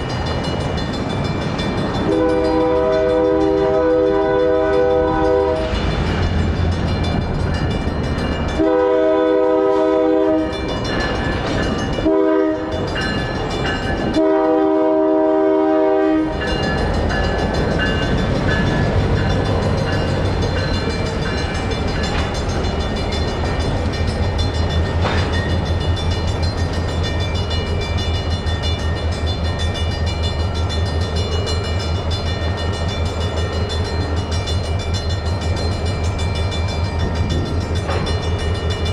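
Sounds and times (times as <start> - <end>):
crossing bells ringing: 0.0 - 38.9
locomotive horn blasts: 2.1 - 5.8, 8.6 - 10.6, 12.0 - 12.9, 14.2 - 16.4.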